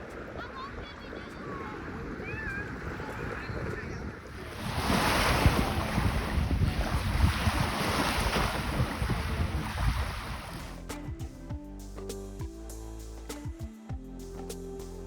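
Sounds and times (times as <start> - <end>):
lake waves washing: 0.0 - 10.9
wind buffeting microphone: 0.0 - 10.9.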